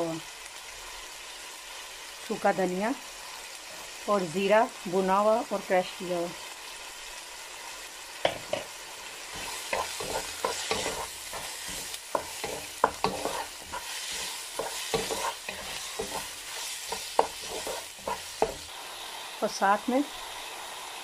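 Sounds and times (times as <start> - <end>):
meat frying with steady sizzle: 0.0 - 21.0
wooden spatula scraping a pan: 9.3 - 18.7.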